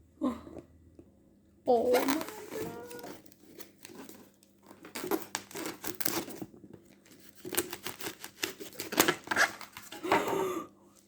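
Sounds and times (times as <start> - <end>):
packaging torn and crinkled: 1.8 - 9.9.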